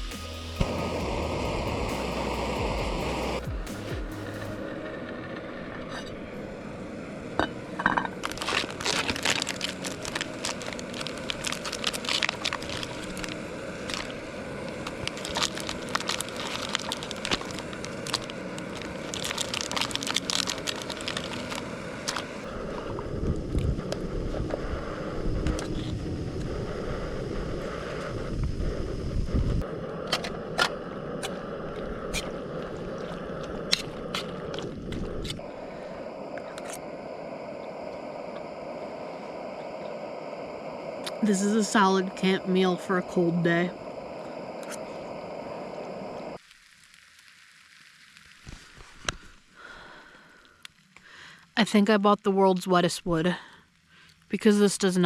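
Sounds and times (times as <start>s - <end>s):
low rumbling thumps: 2.6s - 4.6s
crackles and crinkles: 7.8s - 24.7s, 29.6s - 55.0s.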